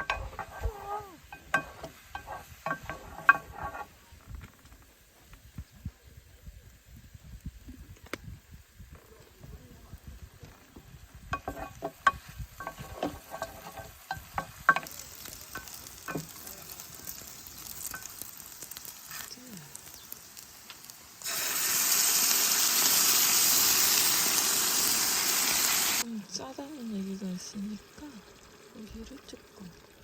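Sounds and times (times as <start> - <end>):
cooking utensils clinking: 0.0 - 3.9, 11.3 - 16.9
food sizzling in a hot pan: 0.0 - 4.2, 10.0 - 30.0.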